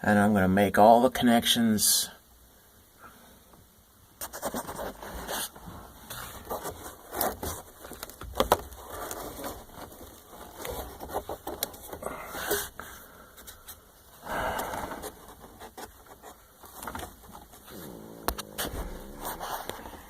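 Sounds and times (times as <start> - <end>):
hands handling parts and cable: 4.6 - 20.0.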